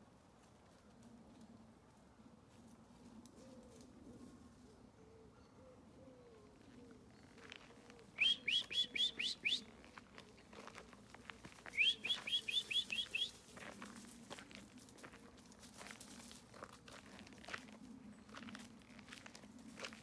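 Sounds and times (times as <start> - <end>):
bird chirping: 8.2 - 9.6, 11.8 - 13.3
rustling in undergrowth: 9.6 - 20.0.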